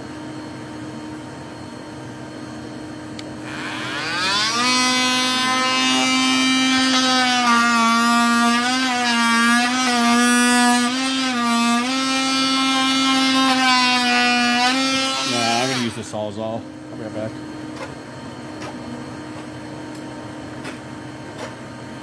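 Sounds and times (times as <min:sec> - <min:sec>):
motor whining: 0:03.4 - 0:16.0.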